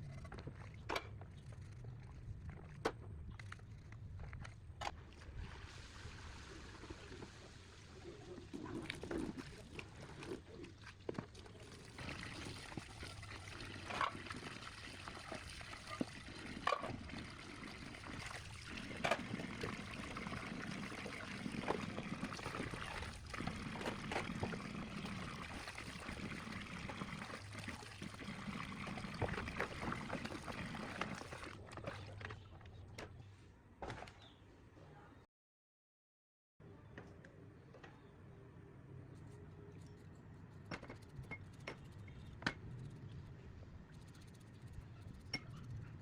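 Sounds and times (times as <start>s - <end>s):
water trickling and pouring: 5.1s - 32.3s.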